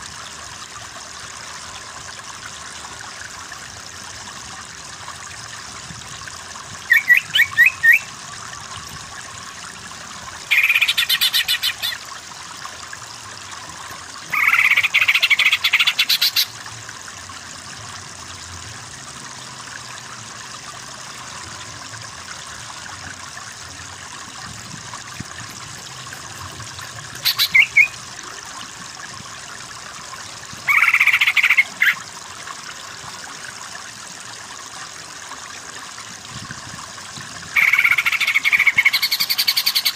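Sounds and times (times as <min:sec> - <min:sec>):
running water: 0:00.0 - 0:39.9
bird calling rapid notes: 0:06.9 - 0:08.1, 0:10.5 - 0:12.0, 0:14.3 - 0:16.5, 0:27.2 - 0:28.0, 0:30.6 - 0:32.0, 0:37.6 - 0:39.9.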